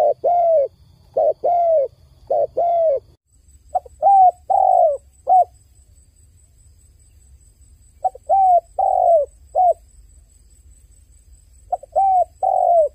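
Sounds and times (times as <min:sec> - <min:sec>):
dove cooing: 0:00.0 - 0:05.5, 0:08.0 - 0:09.8, 0:11.7 - 0:12.9.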